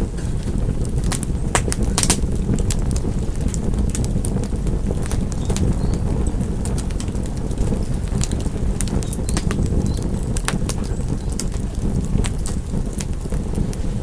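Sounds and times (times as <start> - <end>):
low rumble of burning: 0.0 - 14.0
wood fire crackling and popping: 0.0 - 14.0.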